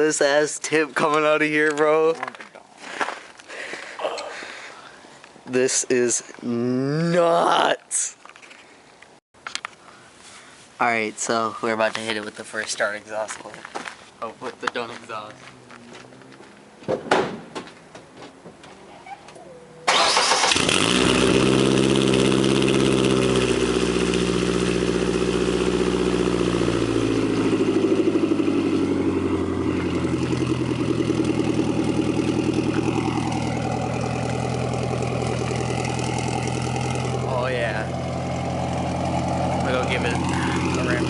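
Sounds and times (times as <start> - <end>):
truck engine starting: 19.8 - 41.0
engine idling through exhaust: 20.6 - 41.0.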